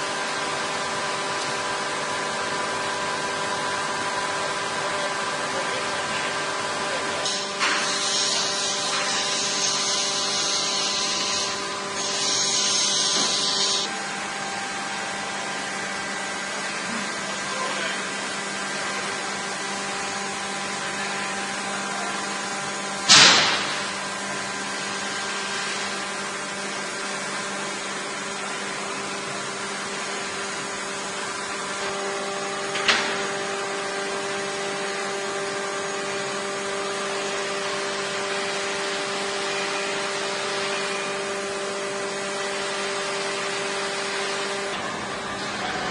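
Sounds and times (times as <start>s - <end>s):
lathe humming: 6.4s - 17.4s
high-pitched hiss: 12.0s - 13.9s
loud sharp bang: 23.1s - 24.0s.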